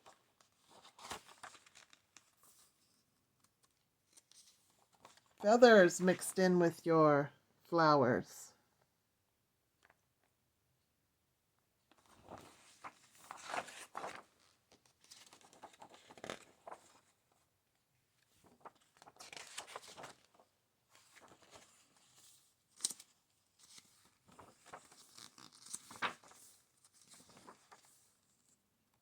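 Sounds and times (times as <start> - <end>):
book pages rustling: 0.0 - 5.4, 11.9 - 17.3, 18.2 - 20.4, 21.0 - 28.6.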